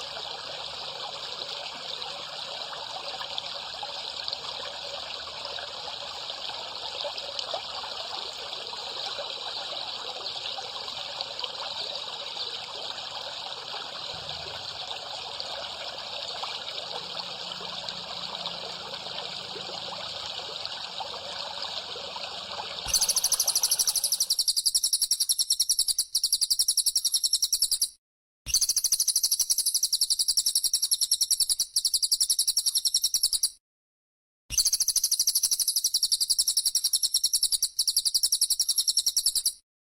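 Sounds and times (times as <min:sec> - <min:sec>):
water trickling: 0:00.0 - 0:24.3
pulsing cicada buzz: 0:22.8 - 0:25.5.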